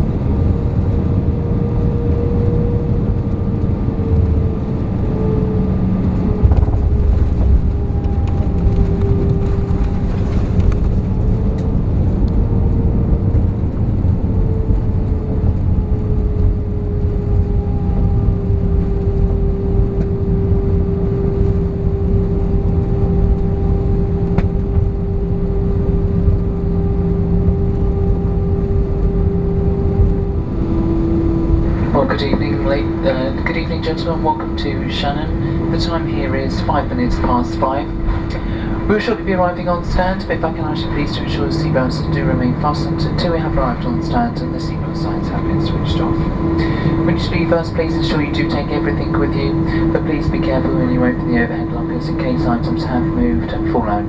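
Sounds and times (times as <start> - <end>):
aircraft cabin rumble: 0.0 - 54.0
jet engines whining: 0.0 - 54.0.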